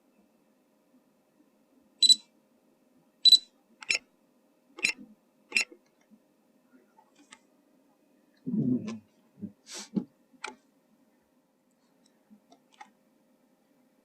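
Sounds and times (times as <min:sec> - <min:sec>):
high electronic beeps: 0:02.0 - 0:02.2, 0:03.3 - 0:03.5.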